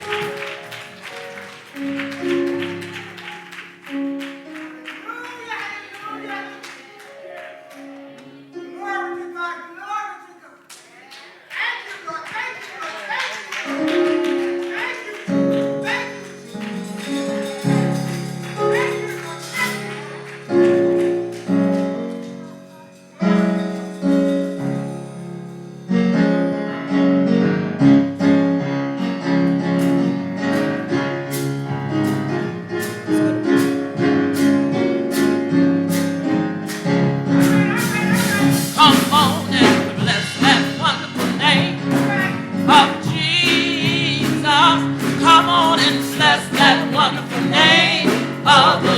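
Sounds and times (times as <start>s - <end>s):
percussion beat: 0.0s - 7.9s, 11.6s - 25.9s, 29.7s - 48.9s
keyboard chords: 0.0s - 10.7s, 13.5s - 48.9s
people singing: 37.8s - 48.9s.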